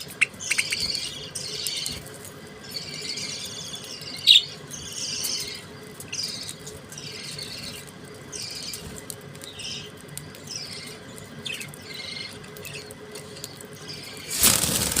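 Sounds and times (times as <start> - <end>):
budgerigars chattering: 0.2 - 2.0.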